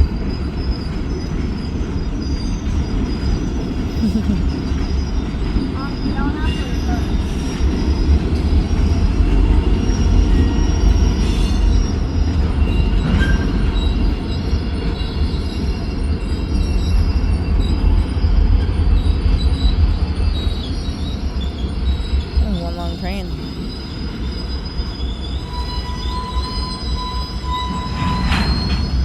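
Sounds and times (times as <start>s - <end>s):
train cars rumbling on track: 0.0s - 29.0s
high-pitched wheel squeals: 9.7s - 22.4s, 23.7s - 29.0s.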